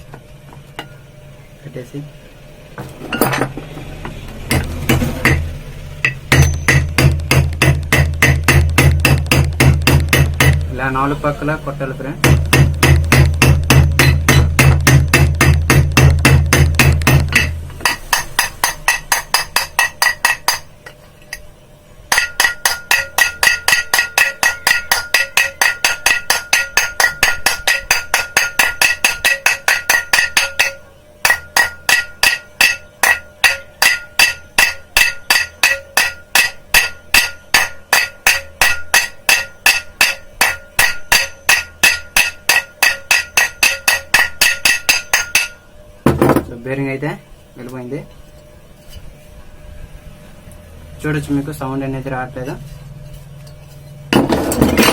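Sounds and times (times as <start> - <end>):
hammer tapping on metal: 4.5 - 10.8, 12.2 - 21.5, 22.1 - 46.4.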